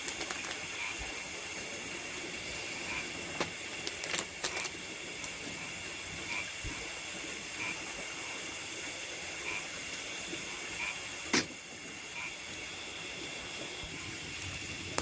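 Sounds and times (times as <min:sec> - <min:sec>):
insects shrilling: 0:00.0 - 0:08.5.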